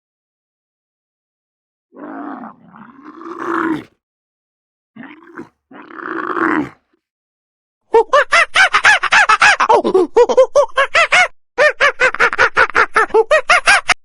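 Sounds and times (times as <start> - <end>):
large animal calling: 2.0 - 3.9, 5.0 - 6.9.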